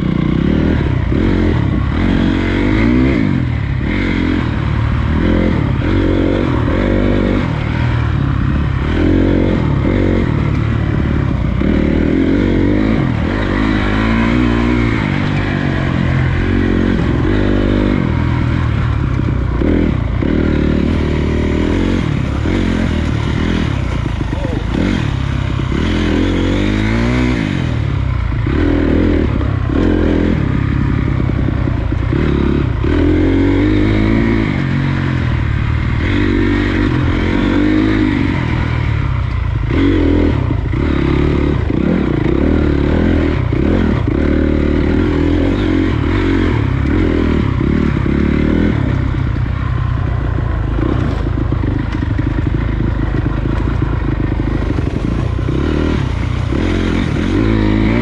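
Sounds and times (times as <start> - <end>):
dirt bike engine revving: 0.0 - 58.0
bike knocks and rattles: 50.2 - 56.6.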